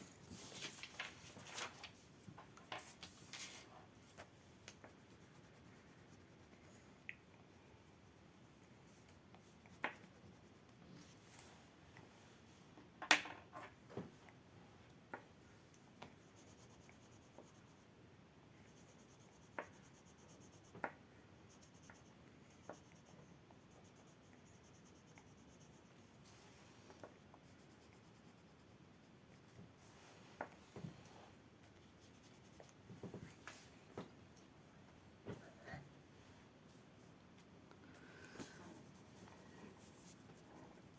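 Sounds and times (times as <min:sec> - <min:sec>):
pencil scratching on paper: 0:04.8 - 0:06.6, 0:16.2 - 0:17.8, 0:21.5 - 0:26.2, 0:27.4 - 0:29.6, 0:31.6 - 0:32.8.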